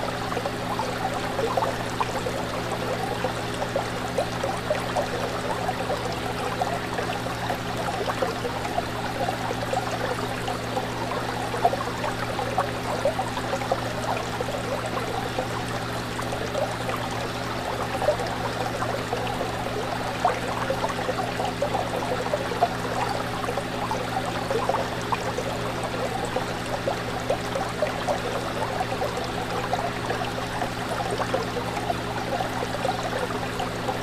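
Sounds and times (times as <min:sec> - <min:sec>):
aquarium water bubbling: 0:00.0 - 0:34.0
constant low hum: 0:00.0 - 0:34.0.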